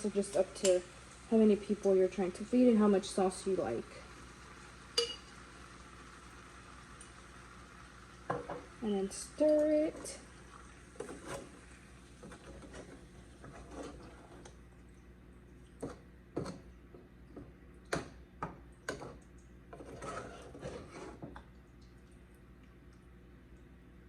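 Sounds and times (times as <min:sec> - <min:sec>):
utensil scraping a pan: 0:11.0 - 0:14.5, 0:19.7 - 0:21.3.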